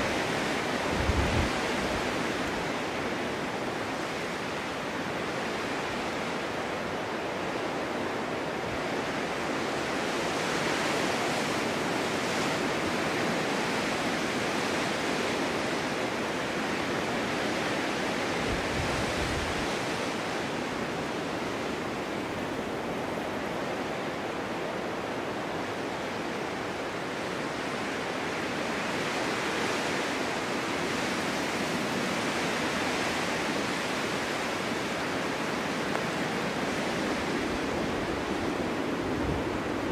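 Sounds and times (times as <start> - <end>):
wind blowing snow: 0.0 - 39.9.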